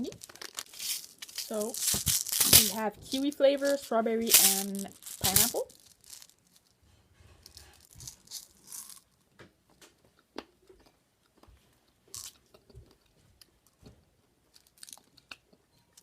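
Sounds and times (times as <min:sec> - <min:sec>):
chewing hard candy: 0:00.0 - 0:02.7, 0:14.5 - 0:15.7
plastic wrappers crinkling: 0:00.0 - 0:06.8, 0:07.5 - 0:09.1, 0:14.6 - 0:15.1.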